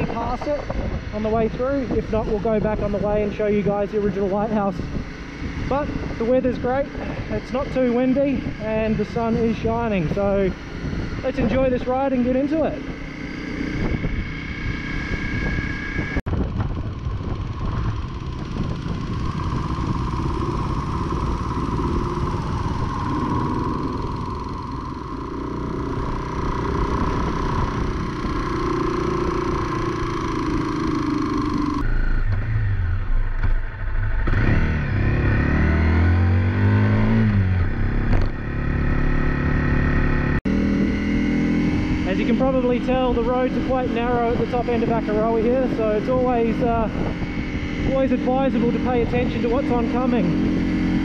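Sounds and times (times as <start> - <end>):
wind rush: 0.0 - 32.0, 40.6 - 51.0
motorcycle engine revving: 0.0 - 51.0.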